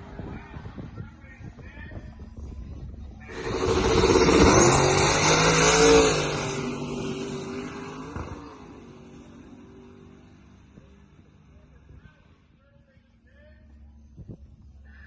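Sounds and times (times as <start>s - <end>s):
drag racing engine at full throttle: 3.3s - 11.9s.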